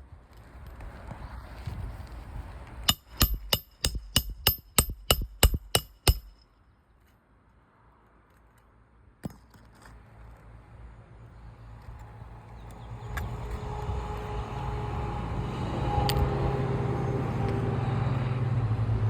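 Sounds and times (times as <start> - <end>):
hammer striking nail: 2.9 - 6.4.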